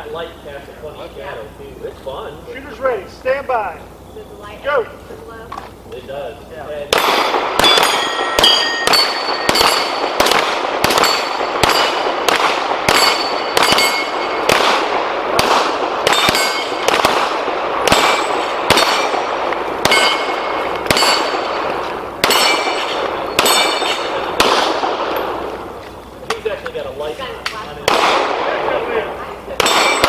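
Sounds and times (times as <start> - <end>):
steel target plates ringing: 6.9 - 14.6, 16.0 - 17.0, 17.9 - 24.4, 29.6 - 30.0
rapid pistol fire: 6.9 - 25.5, 27.8 - 28.8, 29.6 - 30.0.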